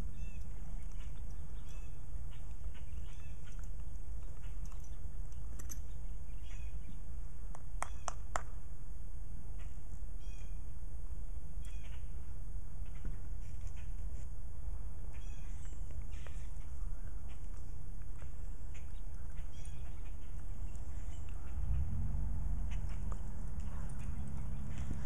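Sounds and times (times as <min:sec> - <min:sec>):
bird chirps: 0:00.0 - 0:07.0, 0:18.7 - 0:25.0
sharp bird calls: 0:00.0 - 0:07.0, 0:11.6 - 0:12.2, 0:15.1 - 0:25.0
low rumble: 0:20.5 - 0:25.0.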